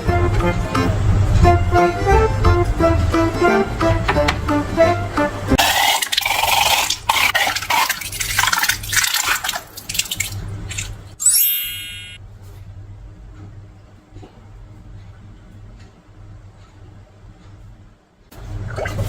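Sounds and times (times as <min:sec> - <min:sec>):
slime squelching and popping: 0:05.6 - 0:11.0.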